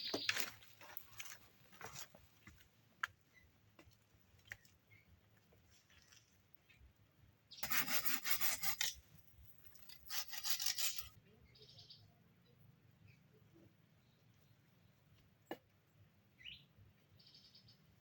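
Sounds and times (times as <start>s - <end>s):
rasping scraping: 7.6s - 9.0s, 9.7s - 11.1s.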